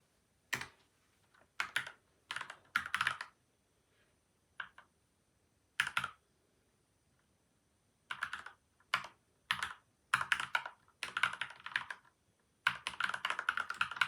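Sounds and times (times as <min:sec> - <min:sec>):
mechanical keyboard typing: 0:01.6 - 0:03.4, 0:05.8 - 0:06.2, 0:08.1 - 0:14.0.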